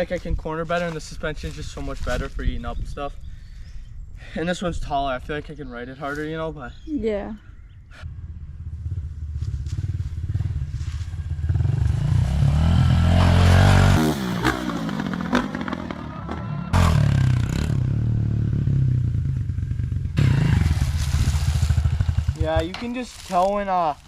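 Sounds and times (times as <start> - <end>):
dirt bike engine revving: 8.5 - 22.9.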